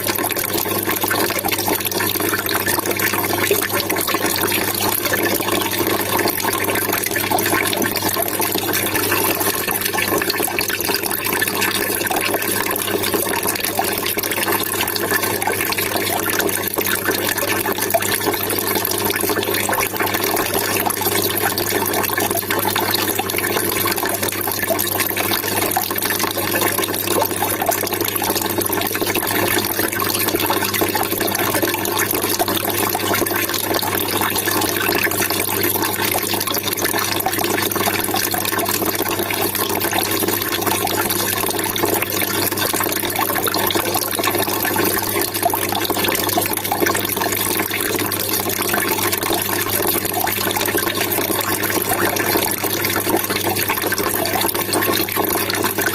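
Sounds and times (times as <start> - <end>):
water trickling and splashing: 0.0 - 55.9.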